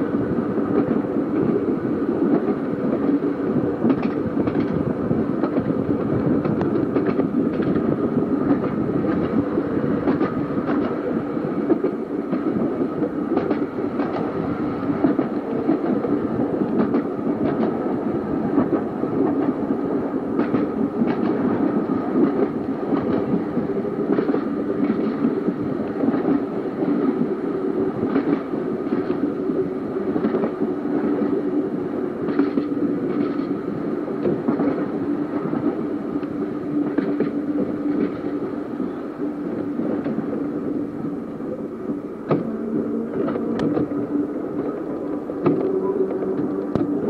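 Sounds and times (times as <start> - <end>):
tram running on track: 0.0 - 47.0
constant hum: 34.2 - 47.0.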